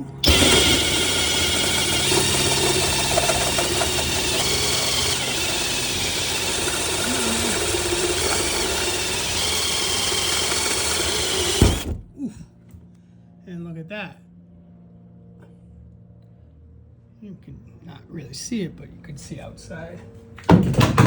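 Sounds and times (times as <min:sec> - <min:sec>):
electric drill boring through metal: 0:00.0 - 0:12.0.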